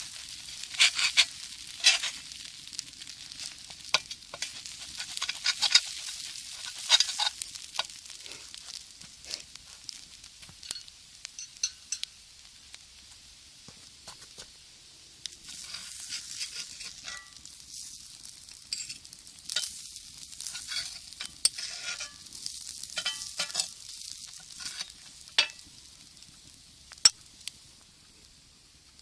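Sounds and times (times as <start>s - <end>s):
food sizzling in a skillet: 0.0s - 29.0s
metal utensil scraping pan: 0.2s - 2.3s, 3.9s - 8.0s, 15.4s - 17.5s, 18.7s - 19.8s, 20.4s - 25.7s.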